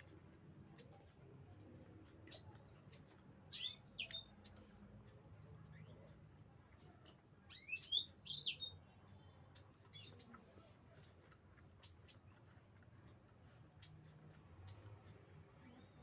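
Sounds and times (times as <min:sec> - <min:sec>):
small bird chirping: 0:00.0 - 0:06.3, 0:07.4 - 0:16.0
faint clicks: 0:00.0 - 0:08.0.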